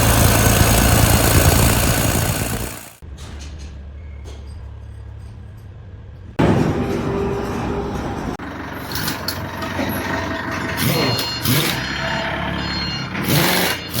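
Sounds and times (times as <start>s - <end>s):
machinery running: 0.0s - 3.0s, 6.3s - 14.0s.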